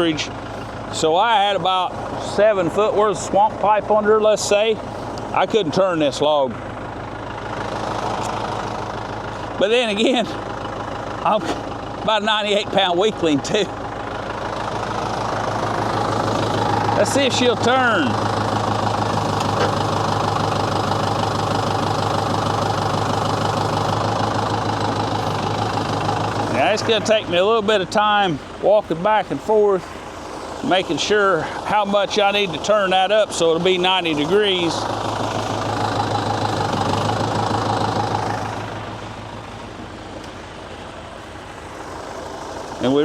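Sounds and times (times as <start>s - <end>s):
tractor engine idling: 0.0s - 43.0s
hydraulics pulling chain: 7.3s - 27.9s.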